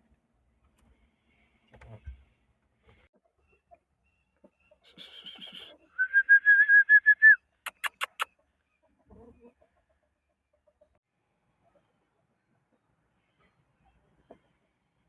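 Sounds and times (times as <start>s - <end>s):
chicken calling: 4.7s - 9.7s
quick sharp clicks: 7.7s - 8.3s.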